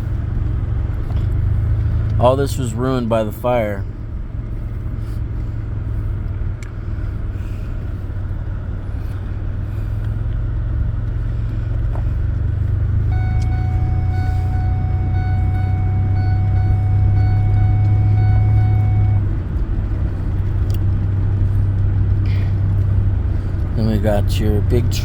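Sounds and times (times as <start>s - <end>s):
vehicle engine drone: 0.0s - 25.0s
steady high tone: 13.1s - 19.3s.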